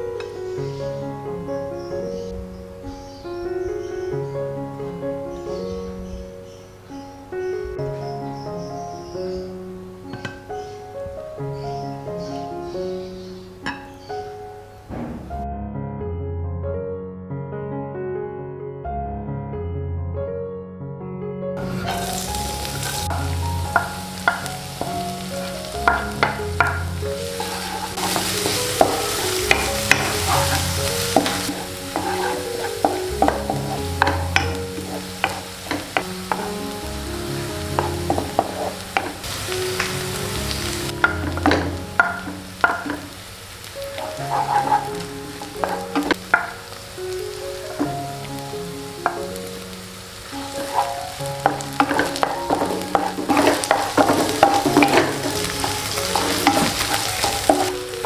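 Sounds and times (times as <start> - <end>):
wooden spatula scraping a pan: 21.6 - 43.2, 44.0 - 46.6, 47.7 - 48.0, 50.4 - 58.0
vegetables sizzling in hot oil: 21.6 - 58.0.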